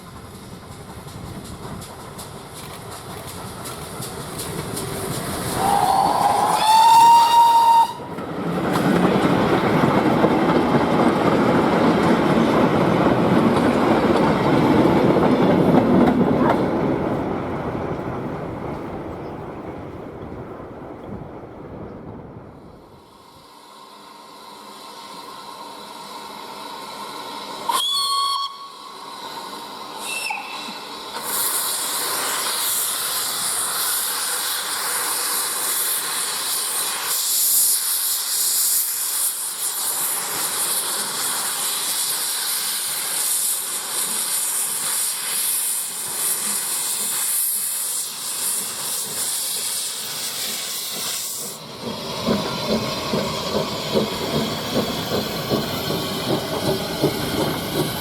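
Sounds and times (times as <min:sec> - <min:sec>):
steam hissing: 0:00.0 - 0:15.7, 0:22.8 - 0:58.0
train wheels clattering on rails: 0:00.0 - 0:21.4, 0:31.1 - 0:58.0
steam locomotive whistle: 0:05.5 - 0:08.2, 0:27.6 - 0:31.8.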